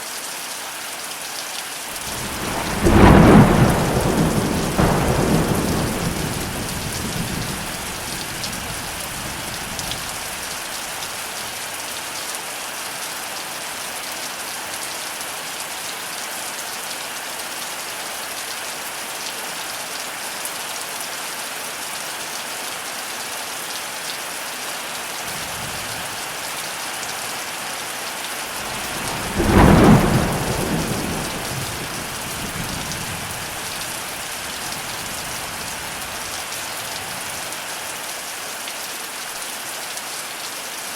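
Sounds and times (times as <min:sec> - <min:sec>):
heavy rain falling: 0:00.2 - 0:40.9
loud thunderclap: 0:02.0 - 0:11.0, 0:28.5 - 0:37.4
thunder rumbling: 0:02.0 - 0:11.1, 0:28.5 - 0:37.5.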